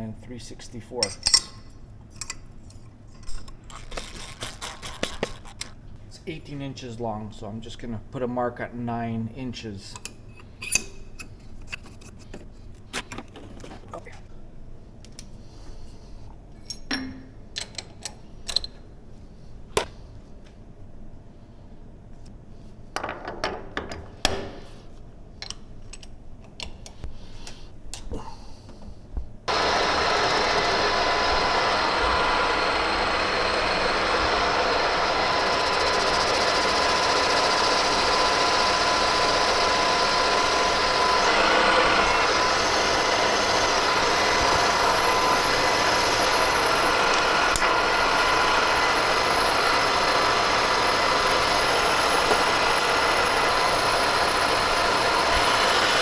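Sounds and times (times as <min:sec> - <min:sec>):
metal lathe running: 0:29.5 - 0:56.0.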